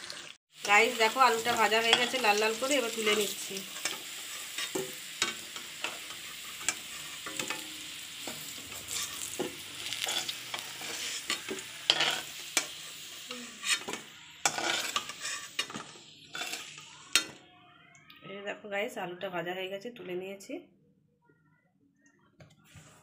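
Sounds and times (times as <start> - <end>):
potatoes sizzling in oil: 0.0 - 17.4
metal spatula scraping a pan: 0.1 - 17.4.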